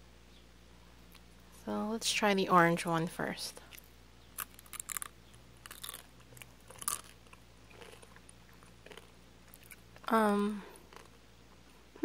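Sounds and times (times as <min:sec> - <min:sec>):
chewing crunchy candy: 0:03.6 - 0:11.6.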